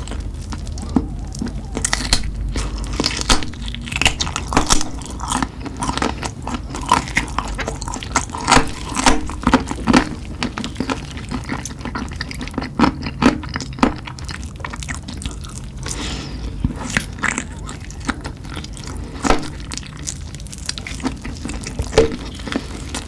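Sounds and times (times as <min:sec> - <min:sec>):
close chewing with mouth clicks: 0:00.0 - 0:23.0.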